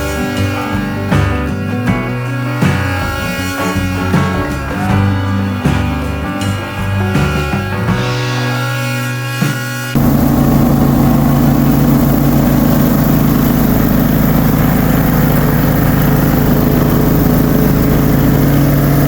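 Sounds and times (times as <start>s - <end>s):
music: 0.0s - 19.0s
ride-on mower engine running: 0.0s - 19.0s.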